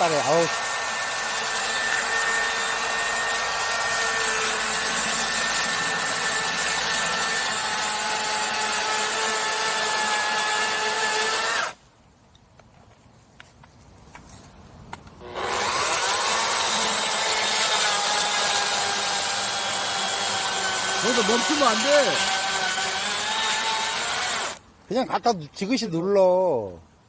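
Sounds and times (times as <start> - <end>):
chainsaw cutting wood: 0.0 - 11.8, 15.2 - 24.6.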